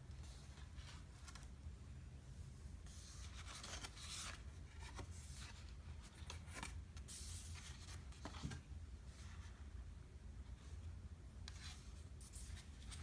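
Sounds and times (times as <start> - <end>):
low steady hum: 0.0 - 13.0
book pages turning: 0.2 - 1.6, 2.9 - 8.7
paper rustling: 2.9 - 9.6, 11.5 - 13.0.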